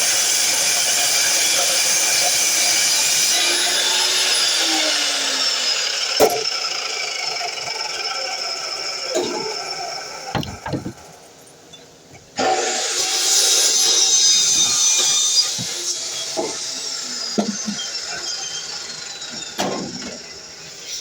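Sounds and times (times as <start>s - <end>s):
wood being handled knocks: 10.4s - 11.0s
miter saw whine: 12.4s - 21.0s.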